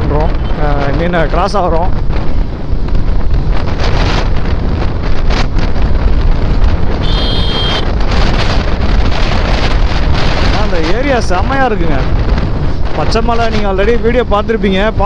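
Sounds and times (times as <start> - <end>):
road noise: 0.0 - 15.0
wind rushing over microphone: 0.0 - 15.0
motorcycle engine: 1.9 - 11.2.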